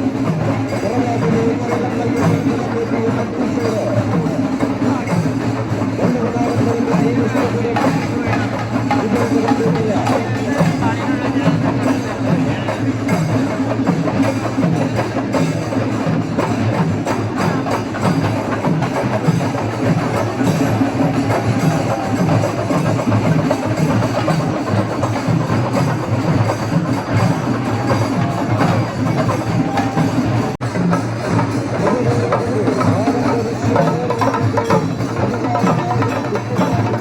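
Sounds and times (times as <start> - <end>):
rapid dense drumming: 0.0 - 37.0.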